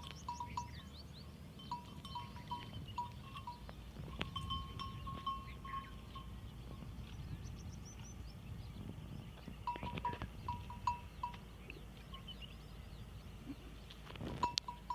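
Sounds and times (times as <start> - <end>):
small metal bell clinking: 1.6 - 6.4.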